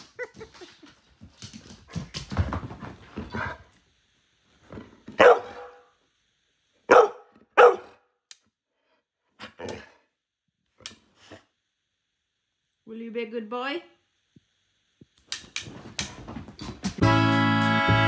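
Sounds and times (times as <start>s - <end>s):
dog barking: 5.2s - 5.9s, 6.9s - 8.0s.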